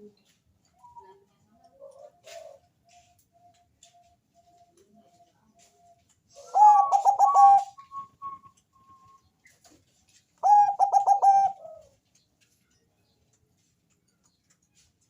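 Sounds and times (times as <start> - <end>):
dove cooing: 0.8 - 3.1, 6.4 - 8.1, 10.4 - 12.0.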